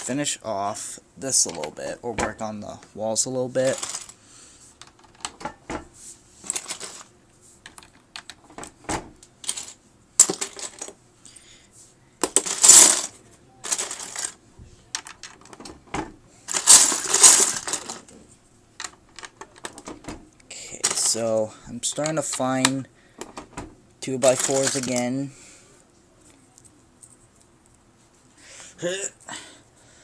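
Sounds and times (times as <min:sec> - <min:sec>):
plastic bricks clicking and clattering: 0:03.6 - 0:04.1, 0:09.4 - 0:11.0, 0:12.2 - 0:15.7, 0:16.5 - 0:18.1, 0:18.8 - 0:19.9, 0:20.8 - 0:23.4, 0:24.2 - 0:25.1.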